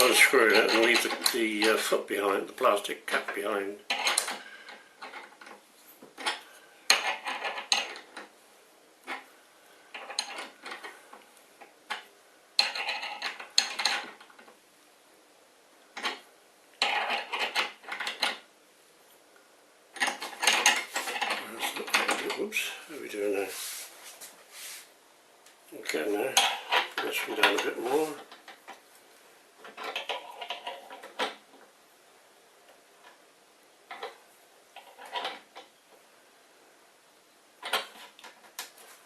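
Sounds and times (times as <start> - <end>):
metal clinking and scraping: 0.0 - 1.9, 3.1 - 8.3, 9.0 - 14.5, 16.8 - 18.4, 20.0 - 24.2, 25.8 - 28.9, 29.6 - 31.6, 34.8 - 35.7.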